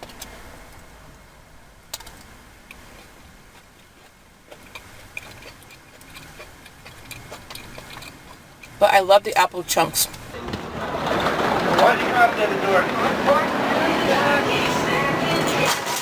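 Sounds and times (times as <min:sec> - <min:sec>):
person chewing: 0:02.7 - 0:08.8.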